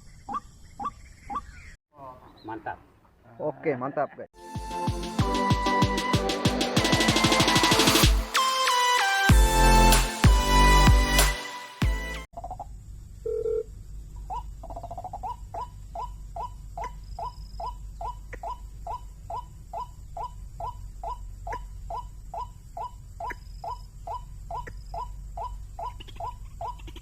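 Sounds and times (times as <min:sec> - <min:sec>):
electronic music: 0:04.4 - 0:12.3.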